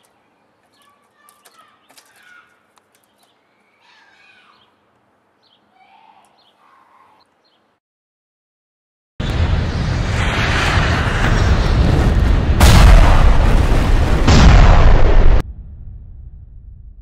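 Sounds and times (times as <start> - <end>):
faint birds chirping: 0.0 - 7.8.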